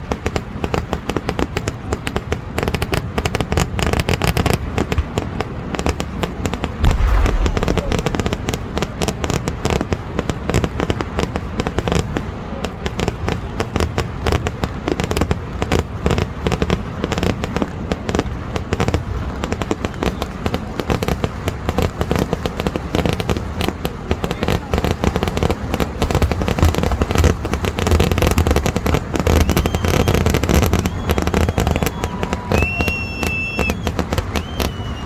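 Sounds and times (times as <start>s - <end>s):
firecracker bangs: 6.1s - 11.6s, 24.6s - 35.0s
heavy firework boom: 6.7s - 11.2s, 28.4s - 35.0s.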